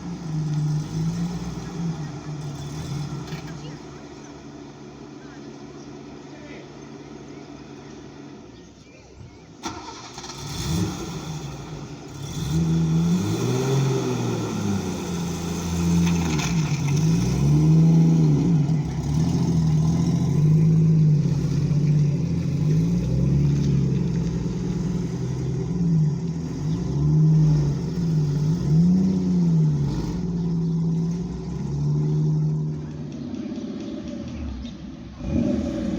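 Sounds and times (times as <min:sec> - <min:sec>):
car engine revving: 0:00.0 - 0:08.4, 0:09.6 - 0:35.9.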